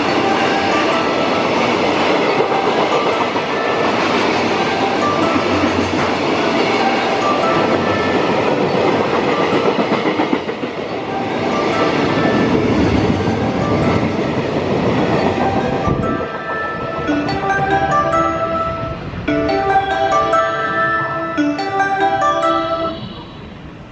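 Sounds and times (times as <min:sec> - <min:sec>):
train wheels clattering on rails: 0:00.0 - 0:17.1.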